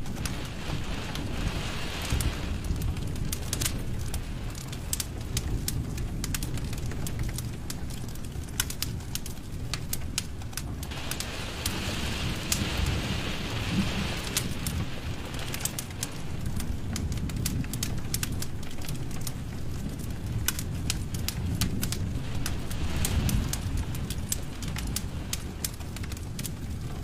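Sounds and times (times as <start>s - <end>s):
low rumble of flames: 0.0s - 27.0s
sharp pops from fire: 0.0s - 27.0s
wood fire crackling: 0.0s - 27.0s
soft hiss: 10.9s - 17.6s.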